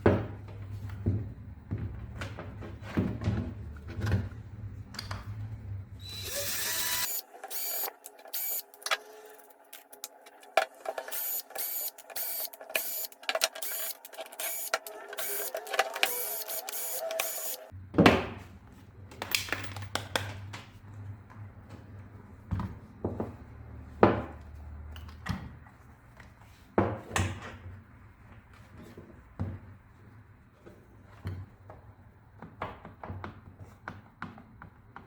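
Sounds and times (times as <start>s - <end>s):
tool parts clicking and knocking: 9.8s - 17.7s.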